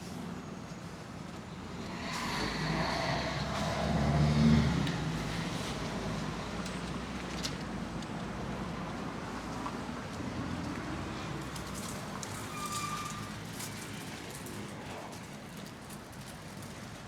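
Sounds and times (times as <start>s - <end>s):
passing vehicle rumble: 1.5s - 6.2s.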